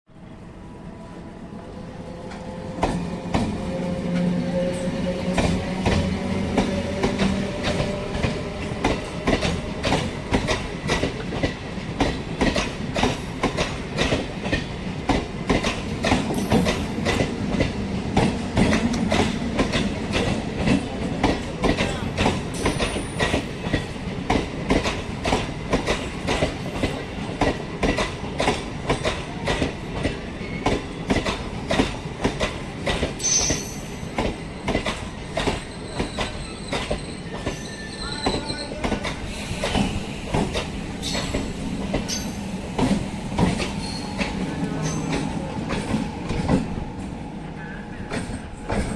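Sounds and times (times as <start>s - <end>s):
train wheels clattering over rail joints: 5.3s - 37.6s, 38.3s - 46.8s
high wheel squeal: 35.6s - 40.2s.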